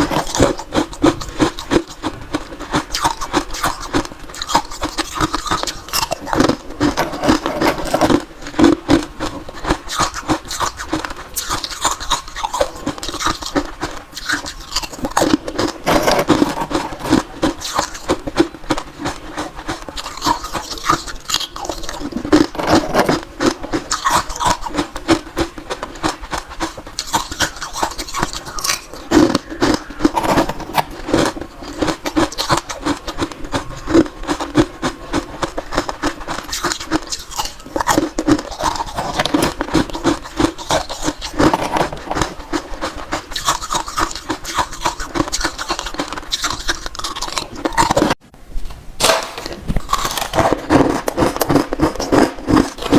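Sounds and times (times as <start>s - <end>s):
chewing crunchy ice: 0.0s - 48.2s, 49.4s - 52.9s.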